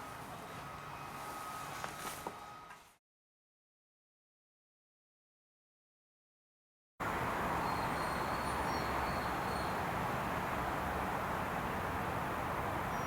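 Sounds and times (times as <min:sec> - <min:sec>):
outdoor background noise: 0:00.0 - 0:03.0, 0:07.0 - 0:13.0.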